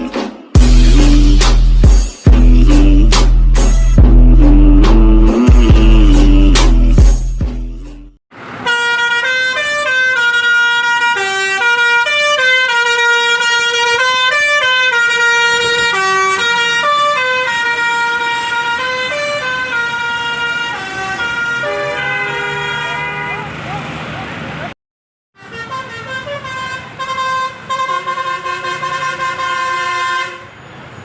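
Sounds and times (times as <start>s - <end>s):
bus horn playing a melody: 8.5s - 23.6s, 25.4s - 30.6s.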